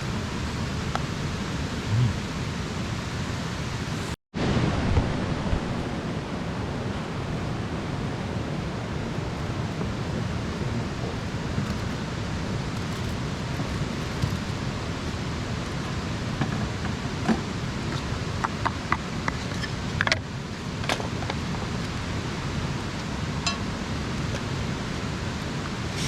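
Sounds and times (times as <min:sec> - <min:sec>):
campfire hiss: 0:00.0 - 0:26.0
fire pops and snaps: 0:12.7 - 0:15.2.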